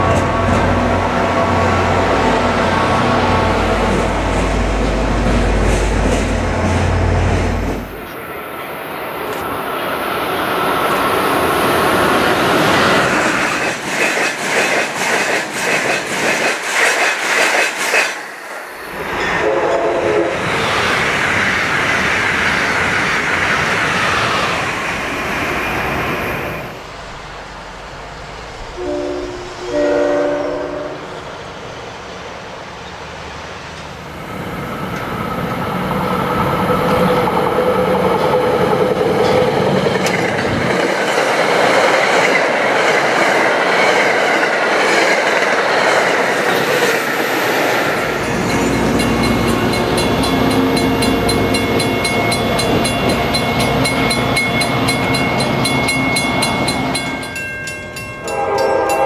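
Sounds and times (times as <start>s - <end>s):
approaching train rumble: 0.0s - 59.0s
train passing at speed: 0.0s - 59.0s
train horn blasts: 19.4s - 20.4s, 28.7s - 31.2s, 58.2s - 59.0s.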